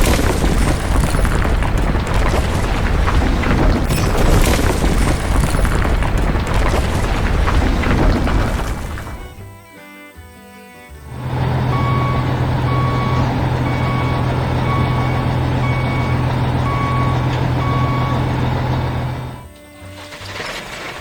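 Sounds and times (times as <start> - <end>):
diesel engine running: 0.0 - 9.6, 11.0 - 21.0
reversing alarm beeping: 11.1 - 19.5.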